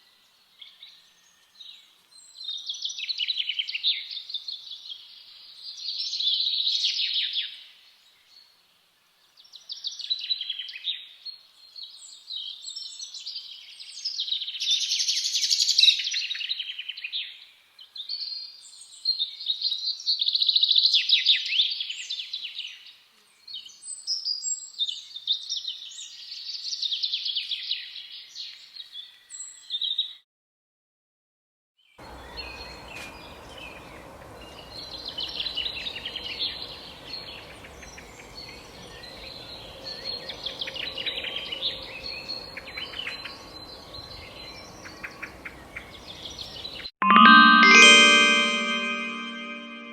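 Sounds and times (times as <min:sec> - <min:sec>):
outdoor ambience hiss: 0:32.0 - 0:46.8
songbird singing: 0:32.0 - 0:47.4.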